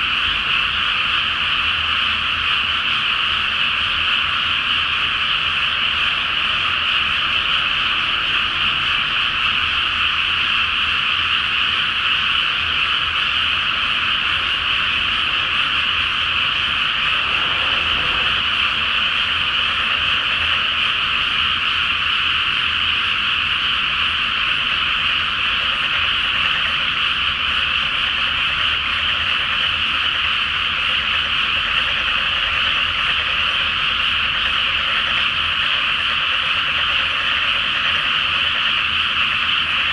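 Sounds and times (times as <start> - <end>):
chorus of frogs croaking: 0.0 - 39.9.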